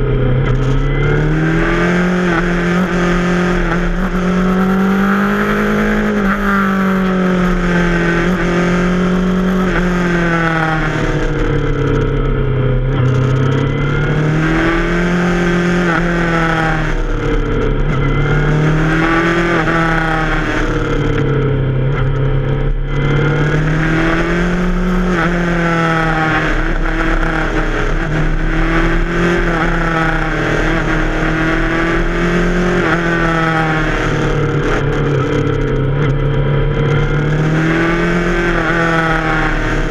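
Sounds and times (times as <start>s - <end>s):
motorcycle engine riding: 0.0s - 39.9s.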